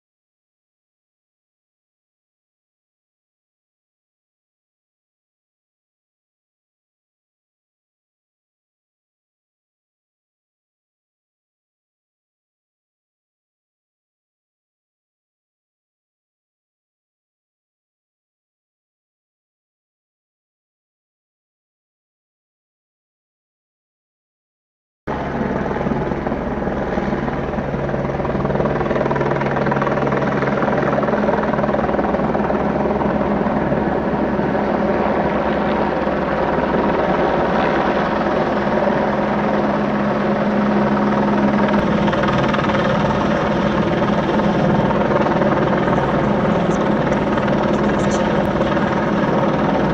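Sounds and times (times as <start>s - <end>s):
helicopter hovering drone: 25.1s - 49.9s.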